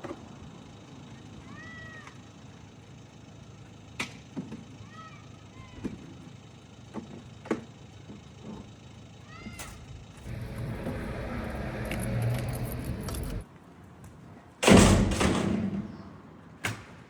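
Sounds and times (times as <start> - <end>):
low steady rumble: 10.2 - 13.4.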